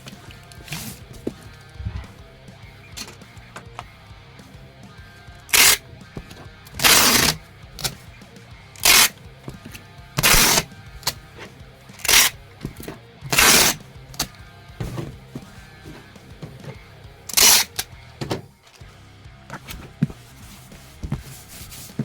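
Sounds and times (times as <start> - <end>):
quiet background music: 0.0 - 22.0
packing tape ripping off roll: 6.8 - 7.4, 8.8 - 9.1, 10.2 - 10.7, 13.3 - 13.8, 17.3 - 17.8.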